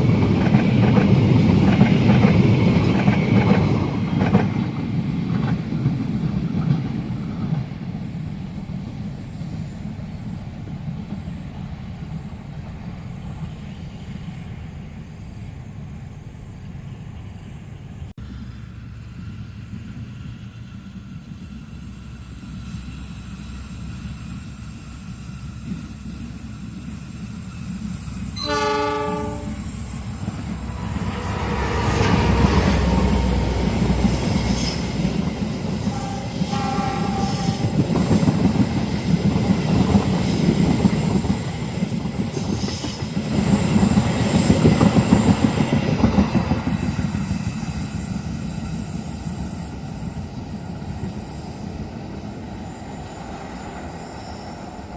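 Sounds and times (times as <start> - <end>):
train wheels clattering on rails: 0.0 - 13.6, 19.0 - 54.9
train rumble: 0.0 - 54.9
high wheel squeal: 19.2 - 54.9
locomotive horn: 28.4 - 29.8, 35.9 - 37.7.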